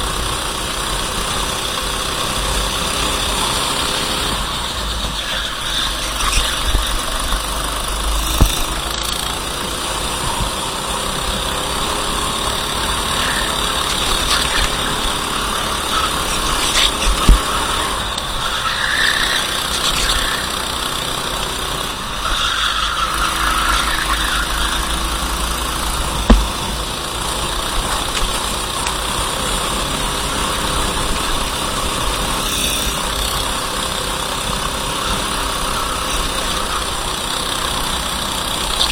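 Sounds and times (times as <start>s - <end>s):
go-kart engine running: 0.0s - 38.9s
steady rush of noise: 1.4s - 38.9s
sharp knocks: 26.2s - 26.8s.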